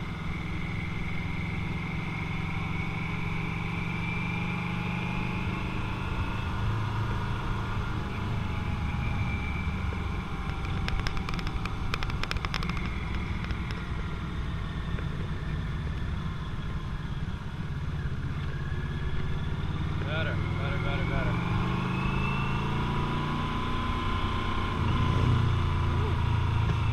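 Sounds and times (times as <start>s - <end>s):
motorcycle engine running: 7.0s - 18.5s
sharp clicks: 10.4s - 13.9s.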